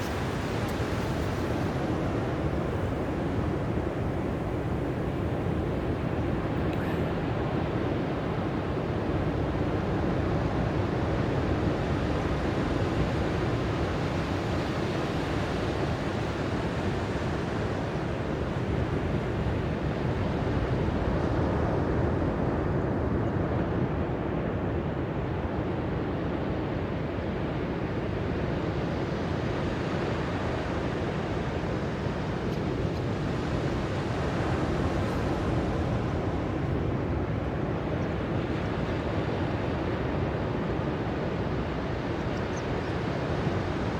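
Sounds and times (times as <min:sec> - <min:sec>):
ocean surf washing: 0:30.6 - 0:42.1.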